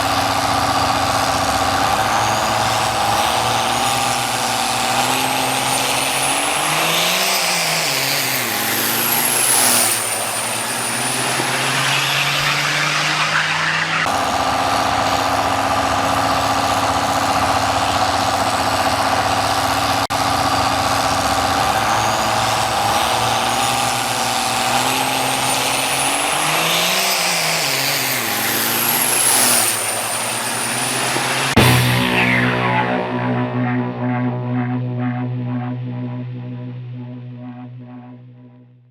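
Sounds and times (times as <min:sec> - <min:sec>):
diesel truck engines revving: 0:00.0 - 0:37.9
high-pitched whistle: 0:08.4 - 0:14.1.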